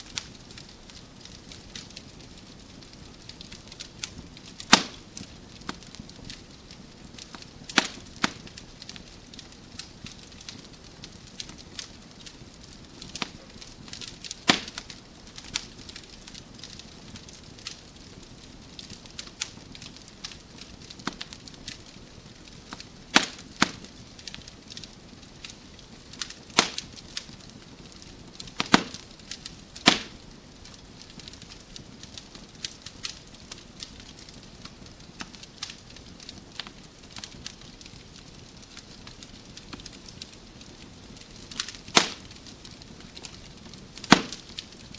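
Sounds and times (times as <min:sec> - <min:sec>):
fire popping loudly: 0:00.0 - 0:44.9
wood fire crackling: 0:00.0 - 0:44.9.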